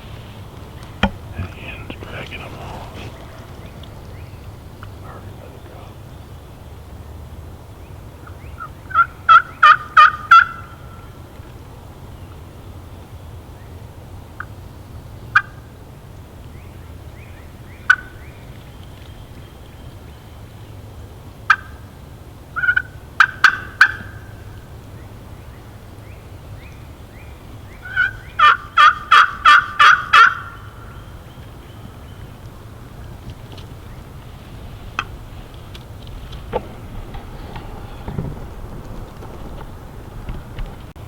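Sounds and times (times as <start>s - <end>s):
turkey yelping and clucking: 8.2s - 10.9s, 17.9s - 18.2s, 21.5s - 21.8s, 22.6s - 24.4s, 27.8s - 31.0s.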